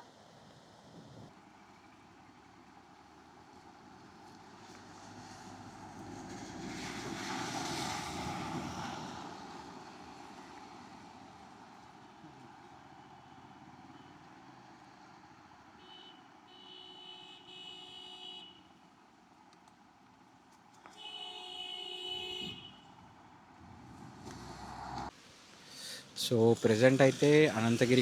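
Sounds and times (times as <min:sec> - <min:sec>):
vehicle passing by: 0:03.0 - 0:15.6, 0:23.4 - 0:25.1.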